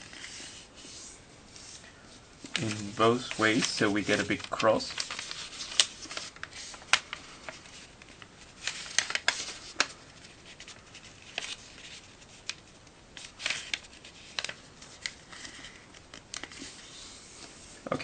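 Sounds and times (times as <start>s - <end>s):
paper being folded: 0.0s - 1.8s, 2.4s - 18.0s.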